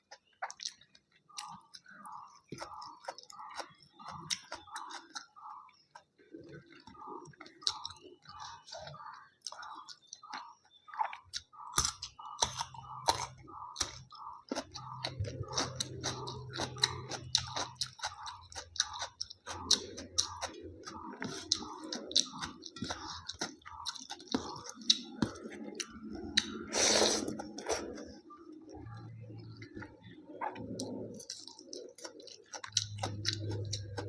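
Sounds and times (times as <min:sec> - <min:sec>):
chewing and biting food: 0:00.0 - 0:34.0
wet mouth clicks: 0:11.0 - 0:28.1.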